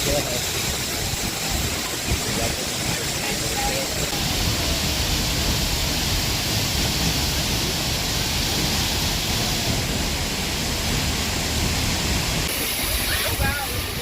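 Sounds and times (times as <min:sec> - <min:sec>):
waterfall crashing: 0:00.0 - 0:14.0.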